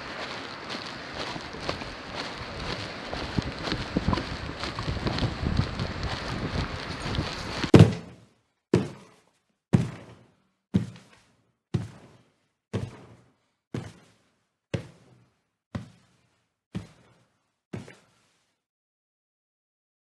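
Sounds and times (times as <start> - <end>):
wind noise on microphone: 0.0 - 7.7.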